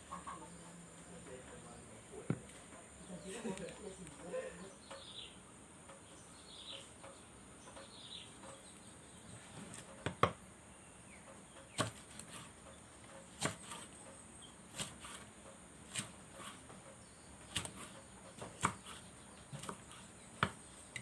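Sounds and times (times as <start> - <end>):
faint bird chirps: 0.0 - 9.6.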